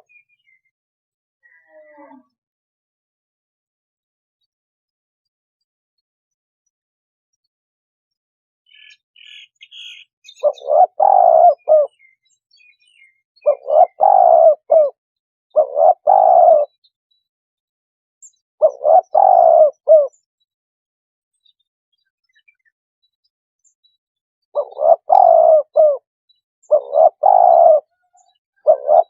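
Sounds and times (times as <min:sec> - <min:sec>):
dove cooing: 0:10.4 - 0:12.0, 0:13.4 - 0:16.7, 0:18.6 - 0:20.1, 0:24.6 - 0:26.0, 0:26.7 - 0:28.0, 0:28.6 - 0:29.0.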